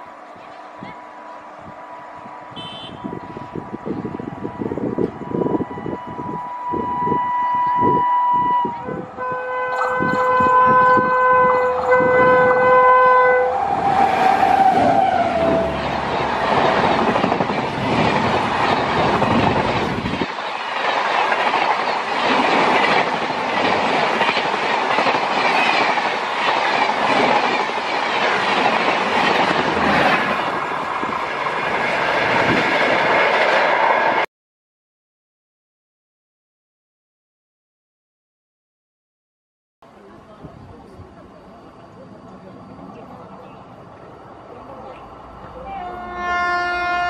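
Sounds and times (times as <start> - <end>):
train coaches rushing past: 0.0 - 34.3, 39.9 - 47.0
locomotive horn: 2.5 - 3.5, 4.6 - 16.1, 45.6 - 47.0.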